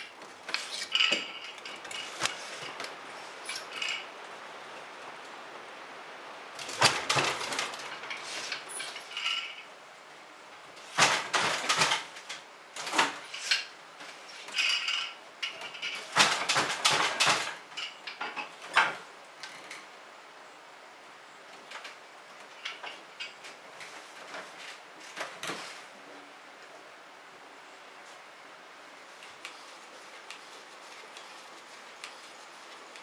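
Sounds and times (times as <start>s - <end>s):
steady background hiss: 0.0s - 33.0s
dishes and cutlery clattering: 0.4s - 4.1s.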